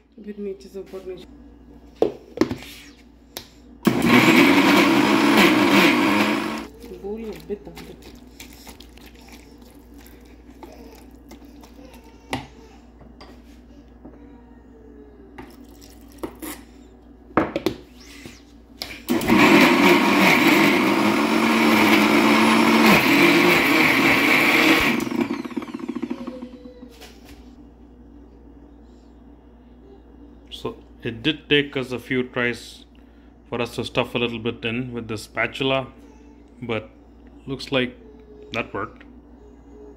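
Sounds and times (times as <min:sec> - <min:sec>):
mixer grinder running: 0:03.8 - 0:12.4, 0:18.1 - 0:26.9.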